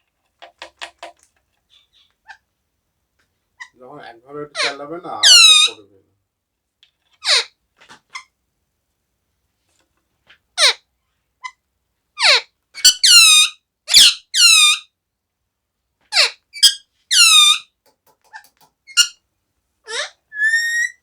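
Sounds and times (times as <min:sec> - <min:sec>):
parrot squawking: 0:03.6 - 0:05.9, 0:07.2 - 0:07.5, 0:17.1 - 0:17.6, 0:18.3 - 0:19.1, 0:19.9 - 0:21.0.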